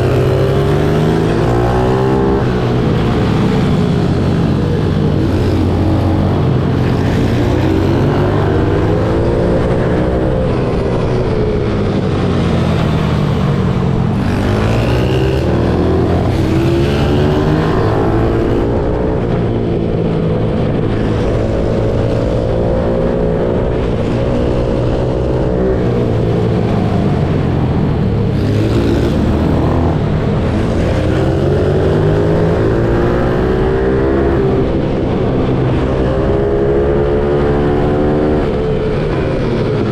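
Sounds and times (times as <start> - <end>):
pit bike engine revving: 14.1 - 19.0.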